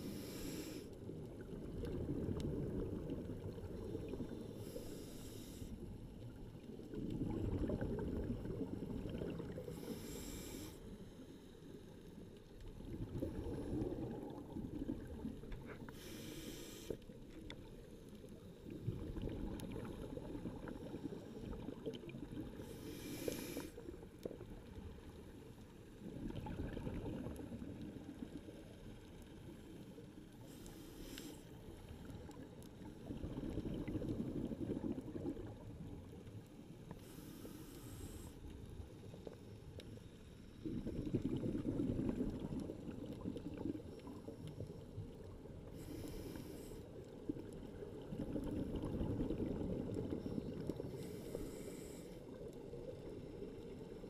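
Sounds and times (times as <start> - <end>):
regulator hiss on inhalation: 0.0 - 0.9, 4.5 - 5.8, 9.7 - 10.9, 15.9 - 17.0, 22.6 - 23.8, 30.5 - 31.5, 37.0 - 38.4, 45.7 - 46.8, 50.9 - 52.2
rumbling exhaled bubbles: 1.1 - 4.5, 6.2 - 9.8, 12.6 - 15.8, 18.6 - 22.6, 25.9 - 28.4, 32.2 - 36.4, 40.6 - 45.7, 47.2 - 51.6.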